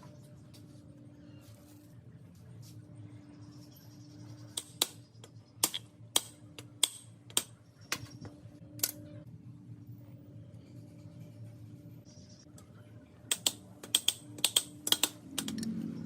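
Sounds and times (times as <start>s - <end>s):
low hum: 0.0s - 13.3s
sharp clicks and taps: 13.3s - 15.7s.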